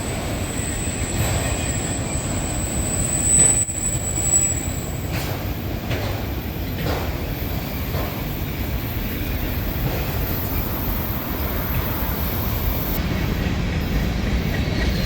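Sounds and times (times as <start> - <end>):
high wheel squeal: 0.0 - 5.2, 9.0 - 13.0
train railcars rumbling: 0.0 - 15.0.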